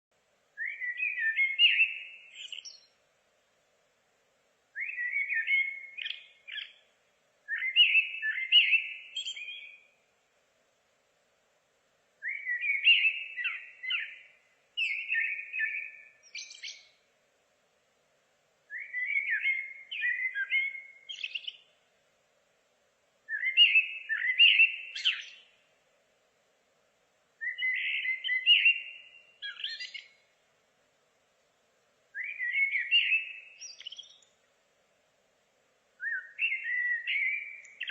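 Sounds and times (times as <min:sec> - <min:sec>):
songbird warbling: 0:00.6 - 0:02.9, 0:04.8 - 0:06.9, 0:07.5 - 0:09.9, 0:12.2 - 0:17.0, 0:18.7 - 0:21.7, 0:23.3 - 0:25.6, 0:27.4 - 0:30.3, 0:32.1 - 0:34.4, 0:36.0 - 0:37.9.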